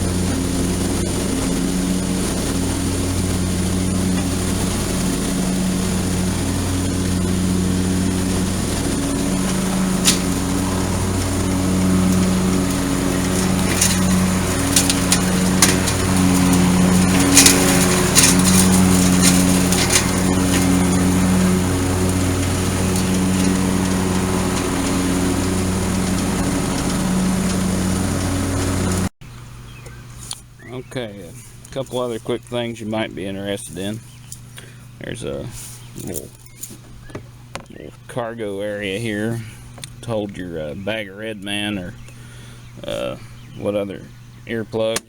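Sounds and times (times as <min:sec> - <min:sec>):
sharp ticks and clatters: 0:00.0 - 0:29.1
lawn tractor engine mowing: 0:00.0 - 0:45.0.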